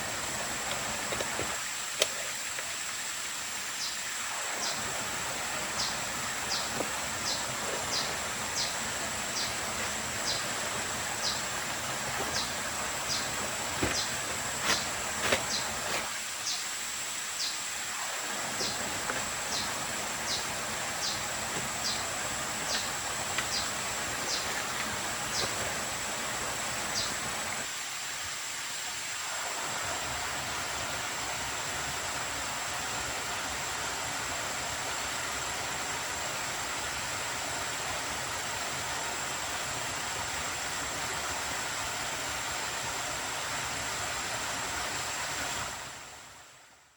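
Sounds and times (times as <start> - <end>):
high insect drone: 0.0 - 45.8
hiss of rain or water: 0.0 - 46.9.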